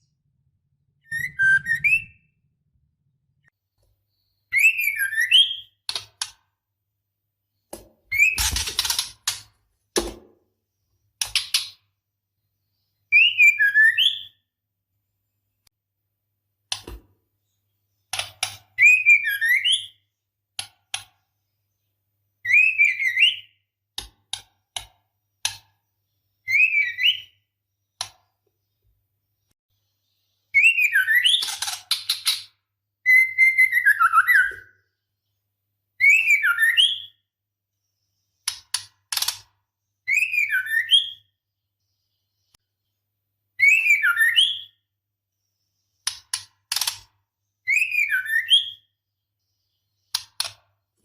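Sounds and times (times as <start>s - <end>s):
bird whistled phrases: 1.0s - 2.3s, 4.5s - 5.8s, 33.0s - 34.8s, 40.1s - 41.3s, 43.6s - 44.8s, 47.7s - 48.8s.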